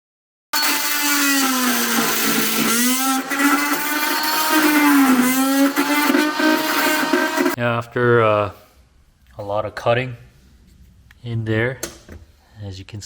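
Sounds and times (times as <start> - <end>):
power tool motor whine: 0.6 - 7.6.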